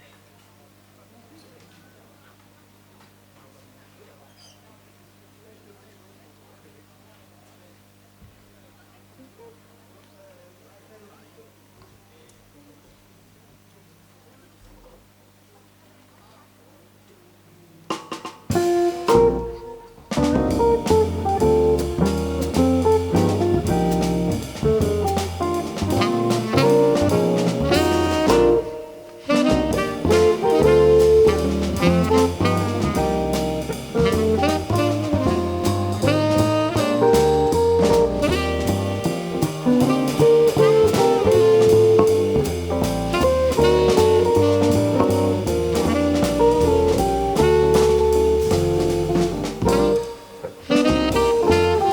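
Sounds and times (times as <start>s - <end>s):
live jazz band playing: 18.5s - 51.9s.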